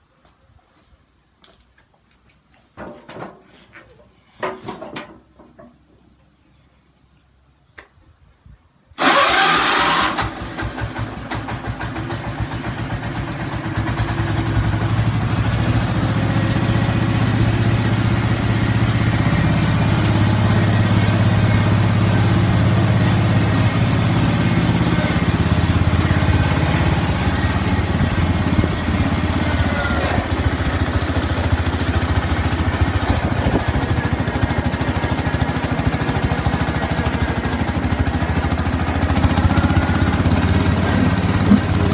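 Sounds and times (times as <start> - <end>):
garden tractor engine starting: 9.0 - 41.9.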